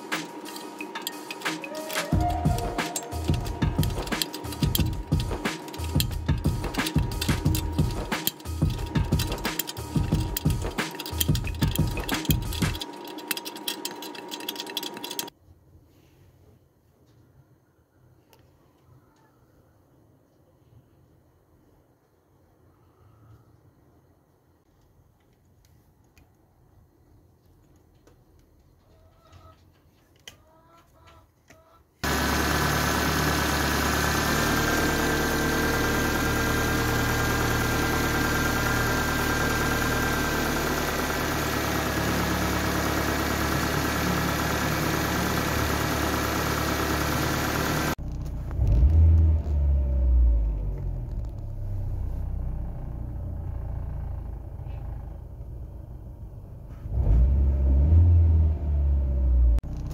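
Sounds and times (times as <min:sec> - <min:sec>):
car engine running: 0:00.0 - 0:15.3, 0:32.0 - 0:59.9.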